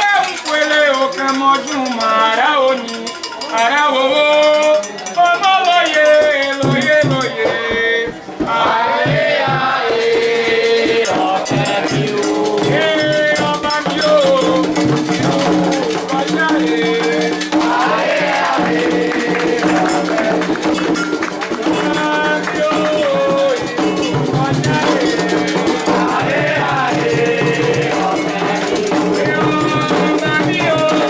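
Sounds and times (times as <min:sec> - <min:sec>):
shaken rattle: 0:00.0 - 0:07.3, 0:10.4 - 0:31.0
voices singing a chant: 0:00.0 - 0:31.0
low drum beats: 0:06.6 - 0:31.0.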